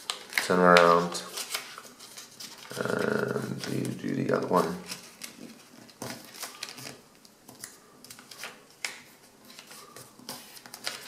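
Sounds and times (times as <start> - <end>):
paper rustling and crackling: 0.0 - 11.0
paper snap: 7.6 - 9.1.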